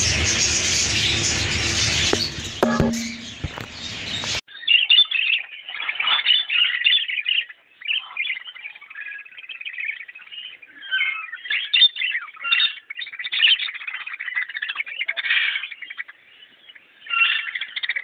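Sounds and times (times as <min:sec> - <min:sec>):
flock of cockatiels chirping: 0:03.8 - 0:16.1, 0:17.0 - 0:18.0.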